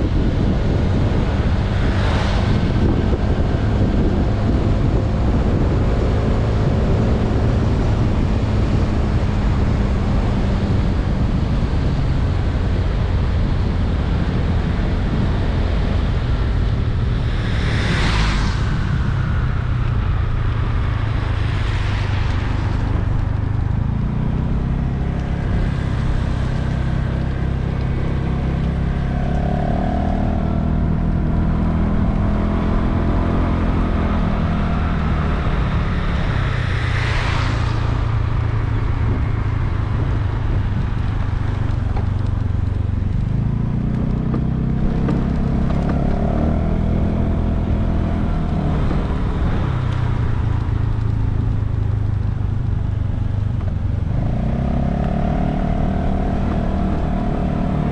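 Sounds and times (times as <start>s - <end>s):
road and wind noise: 0.0s - 57.9s
brief whoosh: 17.1s - 20.3s.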